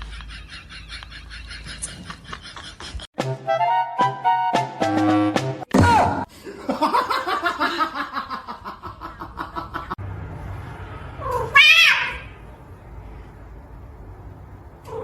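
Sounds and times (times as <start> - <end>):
cat meowing and yowling: 11.2 - 12.4.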